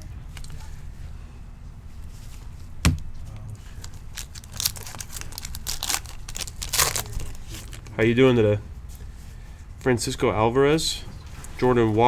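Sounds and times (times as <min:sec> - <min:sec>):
sharp knock: 0:02.9 - 0:03.1
foil wrapper crinkling and tearing: 0:03.8 - 0:07.9.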